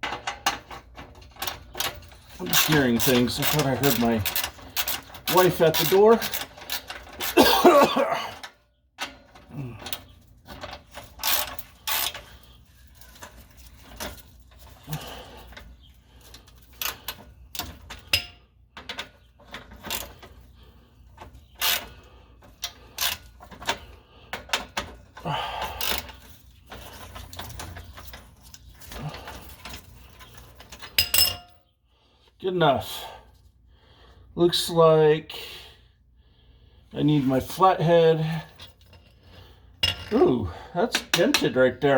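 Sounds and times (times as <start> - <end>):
hand tools clicking and scraping metal: 0.0 - 31.6.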